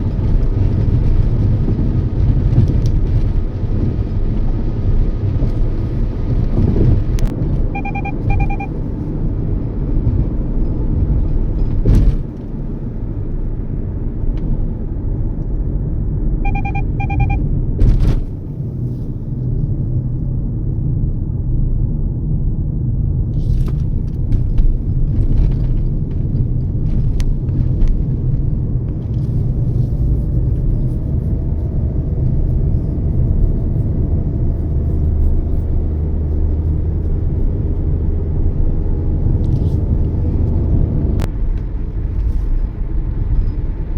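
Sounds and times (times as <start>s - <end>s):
car cabin road and engine rumble: 0.0s - 43.9s
short double beep: 7.7s - 8.8s, 16.4s - 17.4s.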